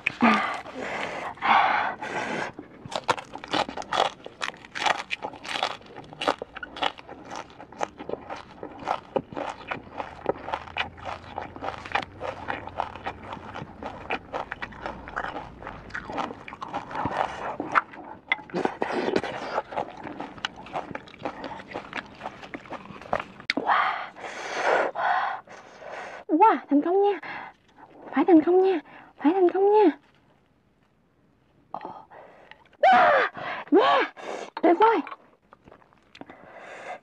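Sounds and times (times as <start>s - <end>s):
chewing crunchy vegetables: 0.0s - 1.4s, 2.0s - 23.6s, 34.8s - 36.6s.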